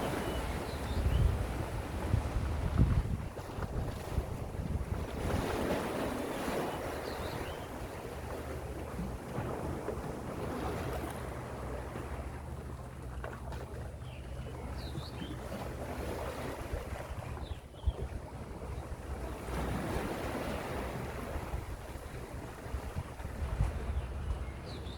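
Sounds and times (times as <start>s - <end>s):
sea waves washing in: 0.0s - 12.8s, 18.5s - 24.2s
wind rumble on microphone: 0.0s - 24.9s.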